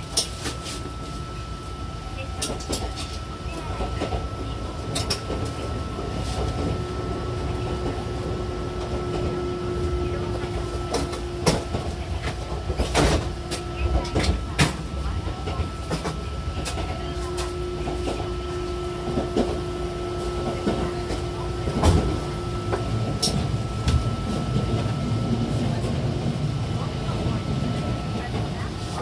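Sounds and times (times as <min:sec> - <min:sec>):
train rumble: 0:00.0 - 0:29.0
traction motor hum: 0:16.2 - 0:28.5.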